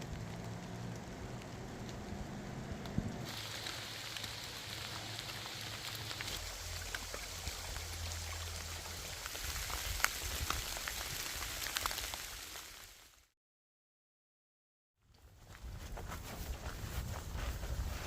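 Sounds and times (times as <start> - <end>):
rain falling: 0.0 - 13.2.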